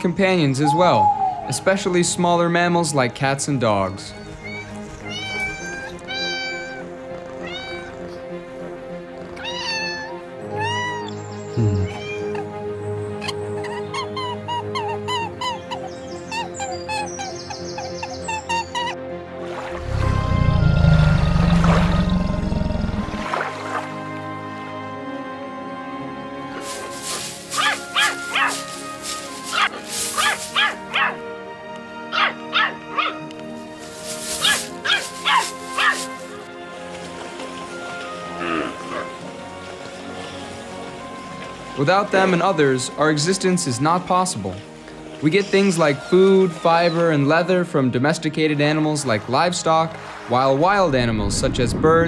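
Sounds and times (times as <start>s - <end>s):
soft background music: 0.0s - 52.0s
cat meowing: 4.4s - 8.1s, 9.4s - 11.2s, 11.8s - 12.5s.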